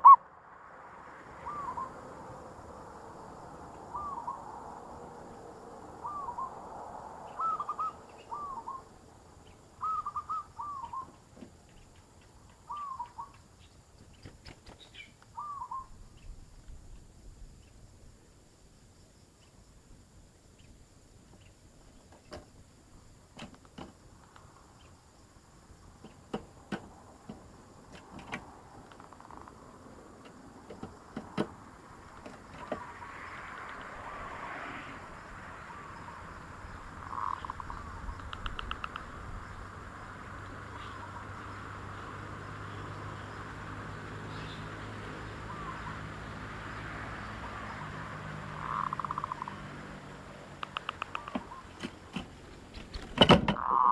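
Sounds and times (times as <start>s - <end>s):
steady background hiss: 0.0s - 53.6s
dove trilled coo: 1.3s - 5.3s, 6.0s - 8.9s, 9.8s - 11.2s, 12.7s - 13.4s, 15.4s - 15.9s, 35.6s - 39.4s, 44.4s - 46.6s, 47.2s - 49.8s, 50.6s - 51.8s
sharp clicks: 38.2s - 39.2s, 50.6s - 53.2s.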